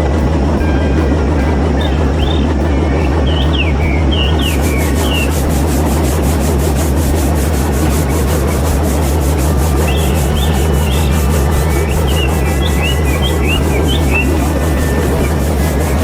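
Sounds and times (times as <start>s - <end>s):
birds chirping: 0.0s - 16.0s
chaff cutter motor humming: 0.0s - 16.0s
fast regular cutting strokes: 0.0s - 16.0s.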